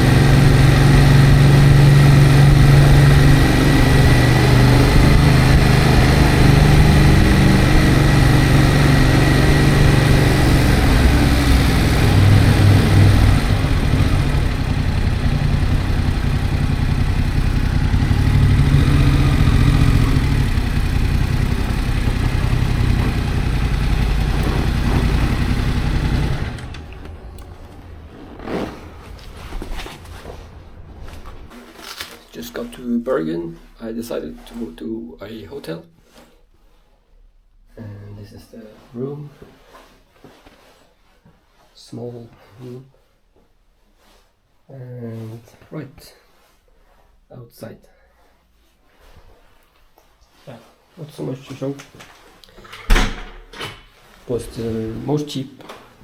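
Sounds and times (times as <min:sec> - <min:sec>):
motorcycle engine running: 0:00.0 - 0:32.4.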